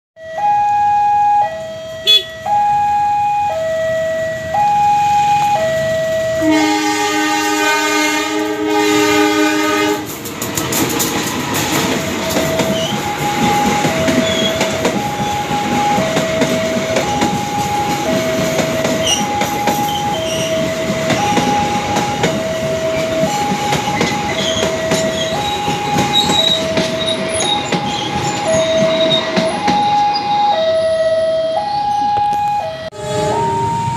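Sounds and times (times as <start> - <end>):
level crossing alarm two tones: 0.2 - 10.0, 12.0 - 33.9
train horn blast: 2.0 - 2.4, 6.4 - 10.2
train wheels rumbling and clattering: 5.3 - 30.5.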